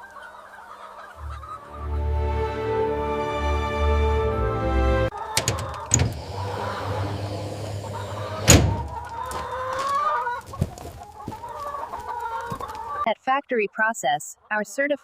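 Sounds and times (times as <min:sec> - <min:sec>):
chickens clucking and calling: 0:00.0 - 0:03.4, 0:05.1 - 0:13.1.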